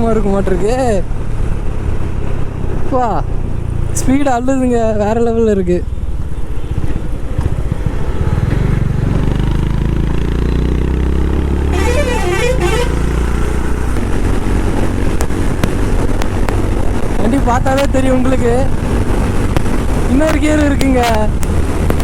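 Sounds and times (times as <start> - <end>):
wind and road noise: 0.0 - 22.0
motorcycle engine at speed: 0.9 - 4.2, 5.9 - 22.0
wavering horn-like tone: 11.7 - 13.3.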